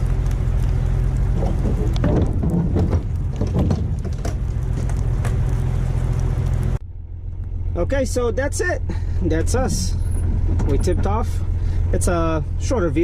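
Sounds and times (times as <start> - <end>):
truck engine idling: 0.0 - 13.0
doors creaking: 1.3 - 5.4, 9.5 - 11.4.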